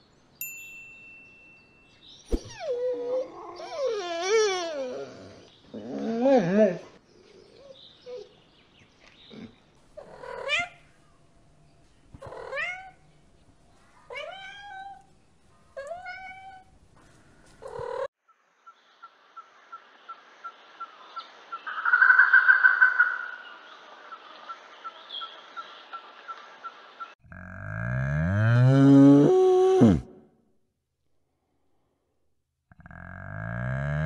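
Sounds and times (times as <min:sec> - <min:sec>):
cat meowing: 0:12.2 - 0:13.0, 0:14.1 - 0:15.1, 0:15.8 - 0:16.7.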